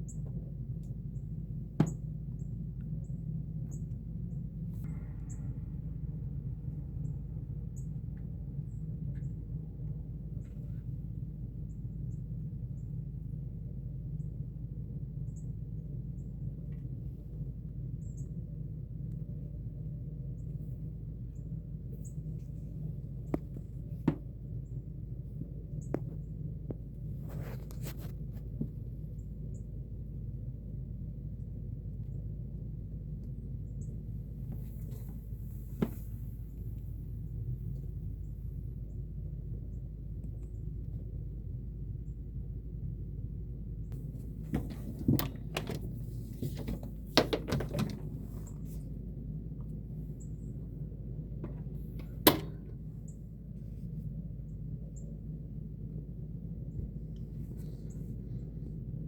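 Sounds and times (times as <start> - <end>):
steady low rumble: 0.0 - 59.0
sharp clicks and knocks: 44.4 - 48.7, 51.4 - 52.9.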